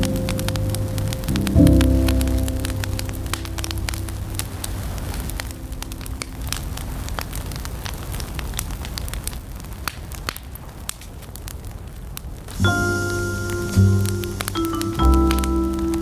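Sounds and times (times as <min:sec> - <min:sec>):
smooth jazz music: 0:00.0 - 0:06.6, 0:12.5 - 0:16.0
low rumble: 0:00.0 - 0:07.8
wood fire crackling: 0:00.0 - 0:16.0.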